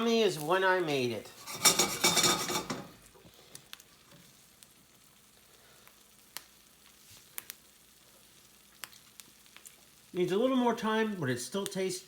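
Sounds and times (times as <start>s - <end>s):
faint sizzle: 0.0s - 12.0s
utensil stirring and scraping in pan: 1.3s - 3.1s.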